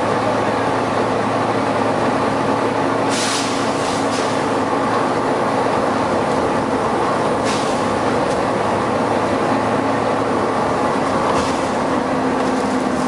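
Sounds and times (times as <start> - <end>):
bus cooling fan drone: 0.0 - 13.0
compressed air hiss: 3.1 - 4.4, 7.4 - 7.9.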